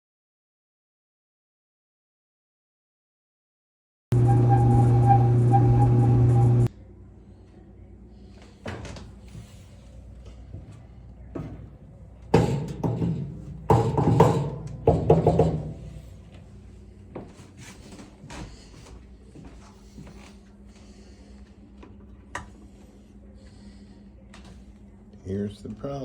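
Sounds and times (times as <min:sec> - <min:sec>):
loud clattering knocks with ringing: 0:12.3 - 0:15.8.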